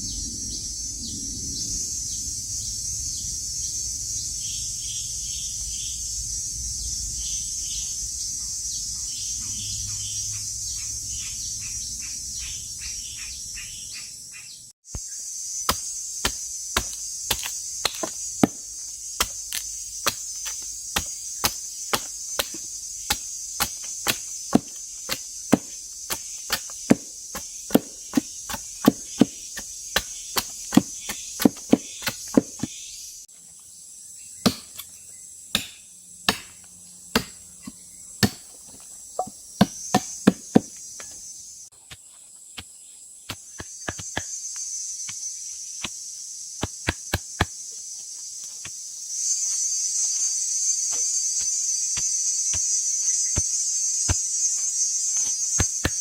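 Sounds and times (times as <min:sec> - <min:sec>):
insects buzzing: 0:00.0 - 0:56.0
sharp blows on wood: 0:14.9 - 0:32.8, 0:34.4 - 0:38.6, 0:39.2 - 0:41.2.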